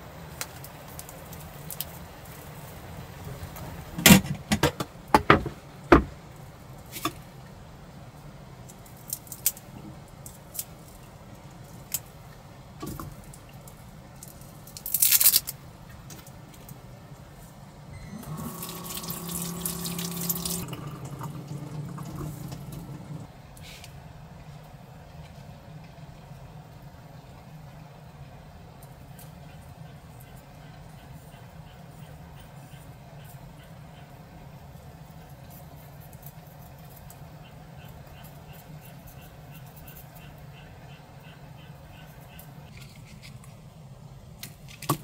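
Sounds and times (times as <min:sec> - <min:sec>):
liquid being poured: 0:18.0 - 0:23.3.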